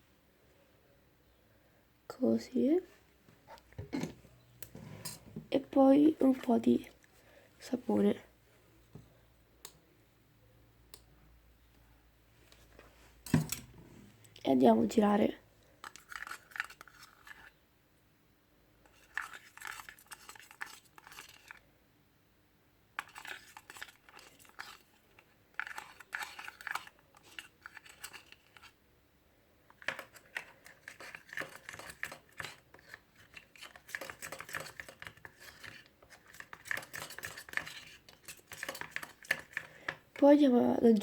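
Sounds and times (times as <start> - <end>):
utensil stirring sticky liquid: 15.8 - 17.6, 18.8 - 21.6, 23.0 - 28.8, 29.7 - 40.3.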